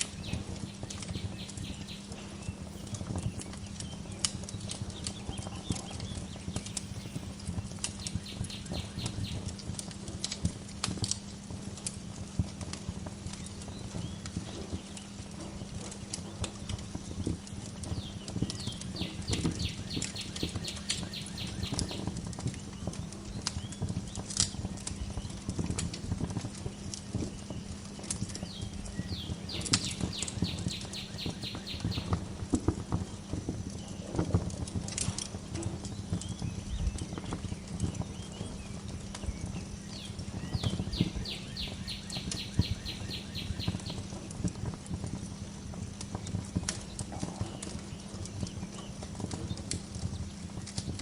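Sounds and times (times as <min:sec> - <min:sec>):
wood fire crackling and popping: 0:00.0 - 0:51.0
songbird trilling: 0:00.2 - 0:04.0, 0:18.0 - 0:22.0, 0:29.0 - 0:32.2, 0:39.9 - 0:43.9.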